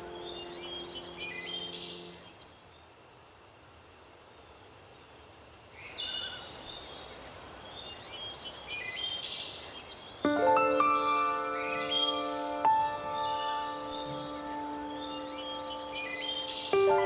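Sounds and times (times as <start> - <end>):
soft sustained music chords: 0.0 - 2.5, 10.3 - 17.0
songbirds chirping: 0.0 - 3.4, 4.1 - 17.0
faint steady hiss: 0.0 - 17.0.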